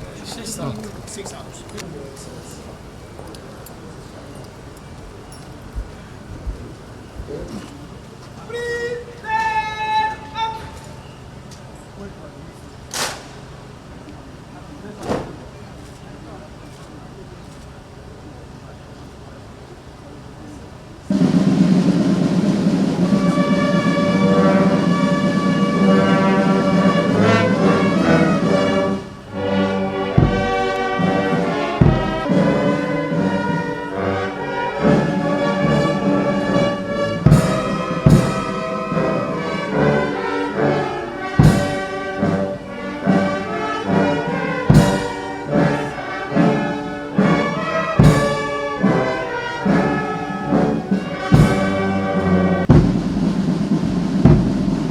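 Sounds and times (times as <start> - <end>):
brass band playing: 0.0 - 5.0, 5.6 - 11.4, 21.1 - 54.9
drum and cymbal strikes: 21.1 - 45.9, 47.2 - 49.8, 50.5 - 54.9.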